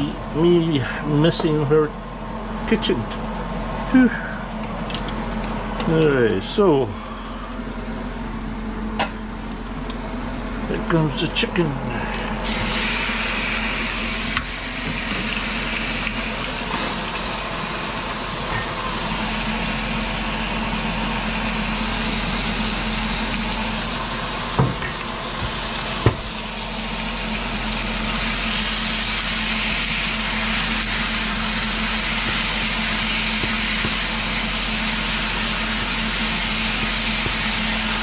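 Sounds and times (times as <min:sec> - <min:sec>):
chicken sizzling in a pan: 0:12.0 - 0:38.0.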